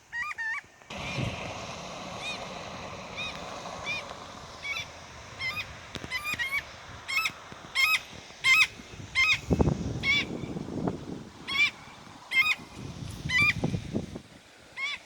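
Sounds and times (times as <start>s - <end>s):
car passing: 0.9s - 14.3s
bird shrill calls: 3.2s - 10.5s, 11.5s - 12.6s.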